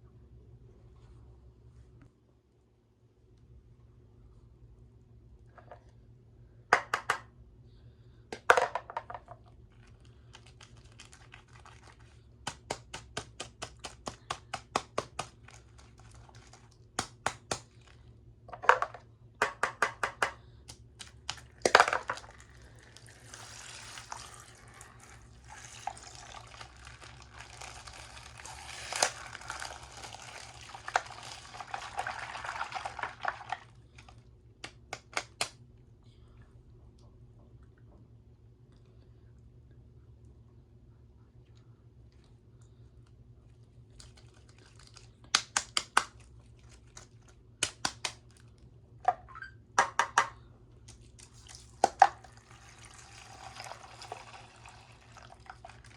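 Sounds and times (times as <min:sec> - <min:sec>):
plastic bags crinkling: 0:09.7 - 0:12.2, 0:15.3 - 0:17.0, 0:25.7 - 0:34.1, 0:43.9 - 0:45.3
liquid pouring and splashing: 0:21.9 - 0:33.8, 0:51.3 - 0:55.9.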